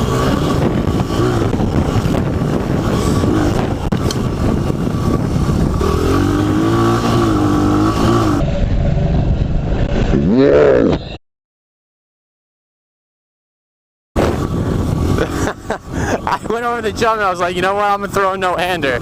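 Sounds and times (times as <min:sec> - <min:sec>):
dirt bike engine revving: 0:00.0 - 0:09.2, 0:14.2 - 0:16.9.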